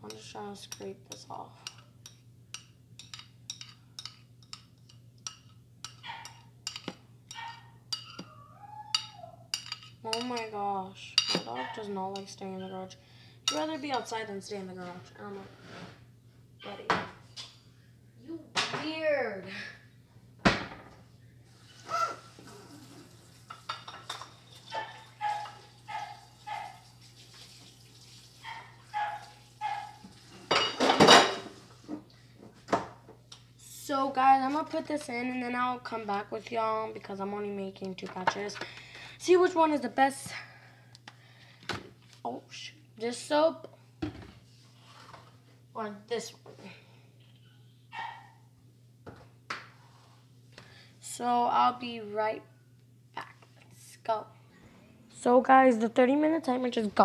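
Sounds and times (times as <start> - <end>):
utensil scraping and tapping dish: 0.1 - 8.3
dog whining: 8.2 - 9.5, 21.8 - 22.8.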